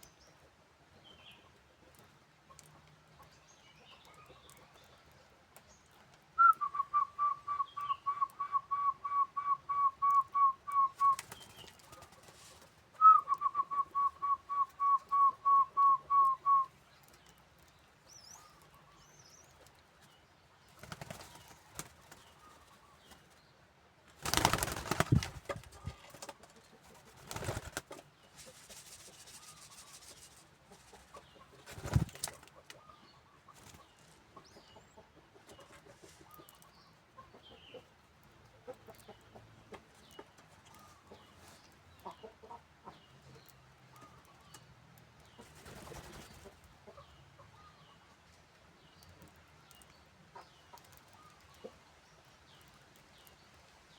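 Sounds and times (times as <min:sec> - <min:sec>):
dove wings flapping: 0:10.8 - 0:14.1, 0:20.7 - 0:22.4, 0:24.2 - 0:30.4, 0:31.6 - 0:32.5, 0:45.5 - 0:46.5.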